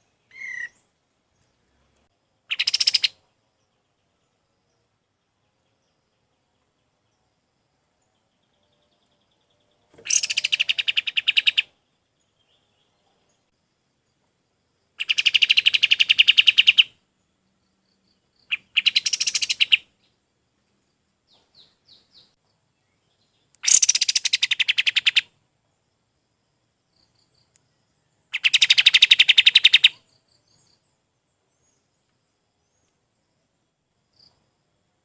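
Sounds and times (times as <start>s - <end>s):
songbird chattering trills: 0.0s - 0.8s, 2.4s - 3.2s, 9.1s - 11.7s, 15.0s - 17.0s, 18.4s - 20.2s, 23.1s - 25.3s, 28.0s - 30.8s.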